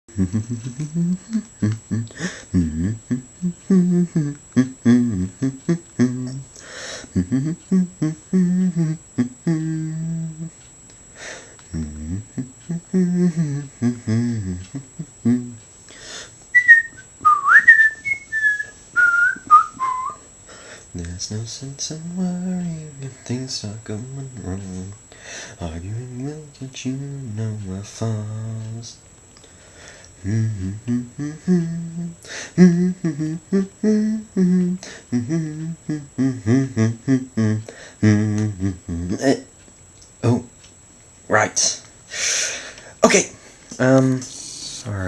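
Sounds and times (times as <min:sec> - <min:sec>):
person humming: 0:00.1 - 0:20.3, 0:20.9 - 0:29.0, 0:30.2 - 0:39.5, 0:43.0 - 0:45.0
person whistling a melody: 0:16.5 - 0:20.2.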